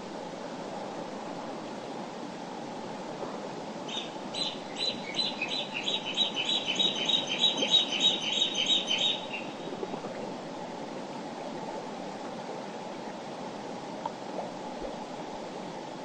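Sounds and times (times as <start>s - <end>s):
songbird singing high notes: 3.9s - 9.6s.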